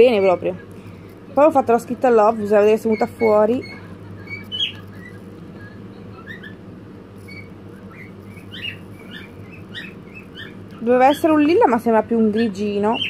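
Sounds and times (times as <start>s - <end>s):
small bird chirping: 2.6s - 11.5s, 12.3s - 13.0s.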